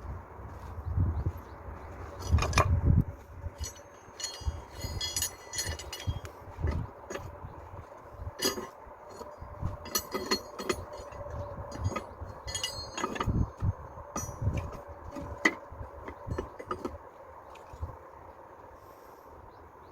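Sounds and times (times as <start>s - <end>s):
hard objects clinking together: 9.8s - 16.9s.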